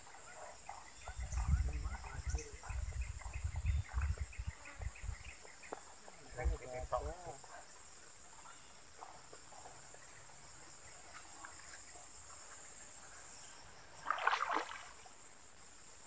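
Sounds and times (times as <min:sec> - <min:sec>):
high-pitched insect chorus: 0:00.0 - 0:16.0
feet wading through water: 0:14.0 - 0:15.1.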